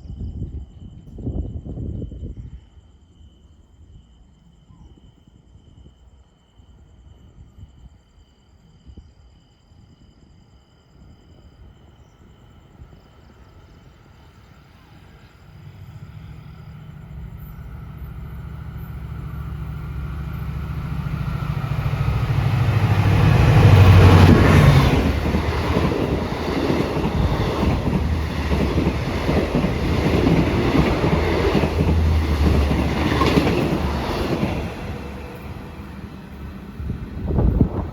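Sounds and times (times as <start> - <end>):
locomotive engine drone: 14.8 - 37.9
train wheels clattering: 15.4 - 37.9.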